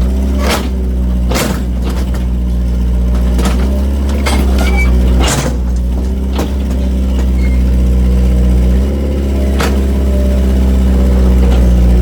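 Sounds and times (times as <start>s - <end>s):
excavator diesel engine: 0.0s - 12.0s.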